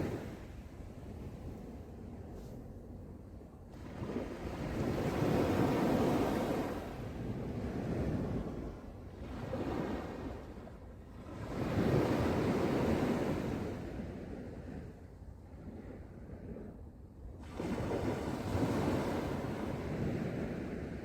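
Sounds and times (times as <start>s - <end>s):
wind rumbling on microphone: 0.0s - 21.0s
sea waves breaking on beach: 9.2s - 10.5s, 17.4s - 21.0s.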